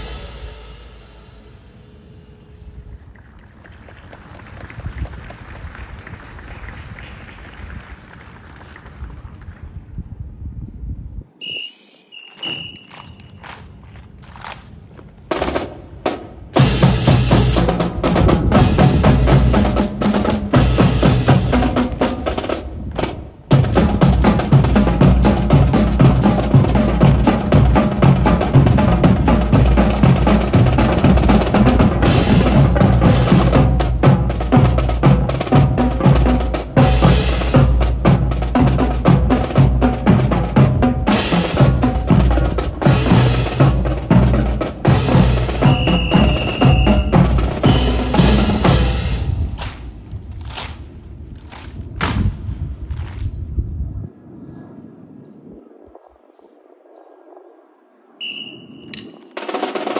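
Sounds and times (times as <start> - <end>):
drum music with snare rolls: 0.0 - 1.0, 15.3 - 49.9, 58.9 - 59.9.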